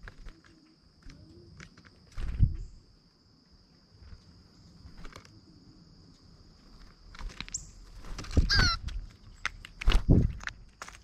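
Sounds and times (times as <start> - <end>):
high insect drone: 0.0 - 11.0
bird harsh call: 8.5 - 8.8.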